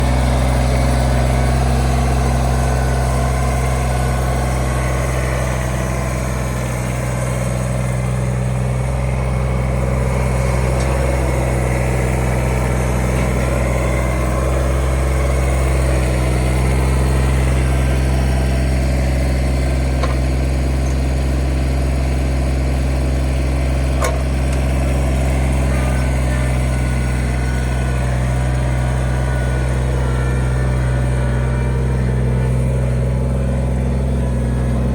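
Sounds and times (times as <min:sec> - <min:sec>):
diesel tractor engine running: 0:00.0 - 0:34.9.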